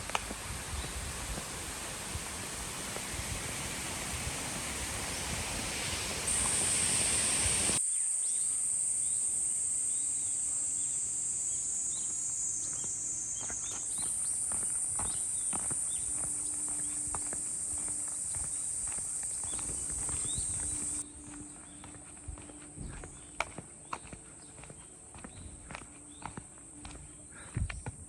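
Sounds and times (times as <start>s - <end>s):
broad rushing noise: 0.0s - 7.8s
insects buzzing: 0.0s - 28.0s
faint footsteps: 12.6s - 28.0s.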